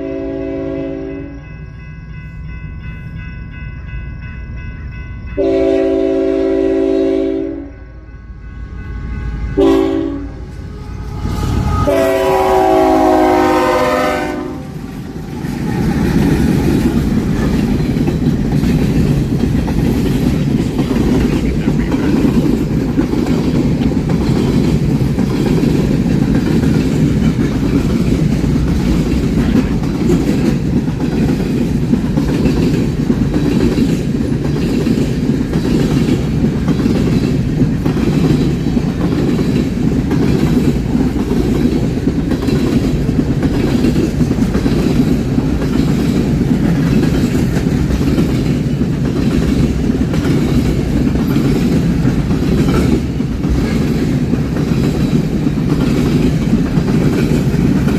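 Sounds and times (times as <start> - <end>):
train wheels rumbling on rail: 0.0 - 57.9
wheels clicking over rail joints: 14.5 - 57.9.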